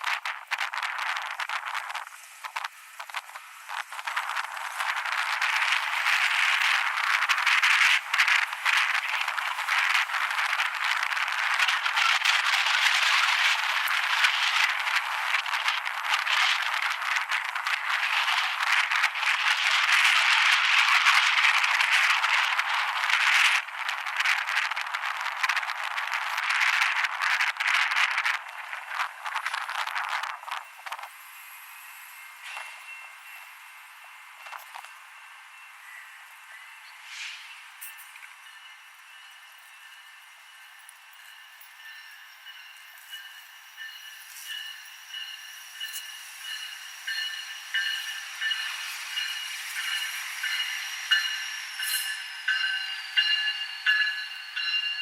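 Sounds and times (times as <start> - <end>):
wind rushing over microphone: 0.0 - 31.2.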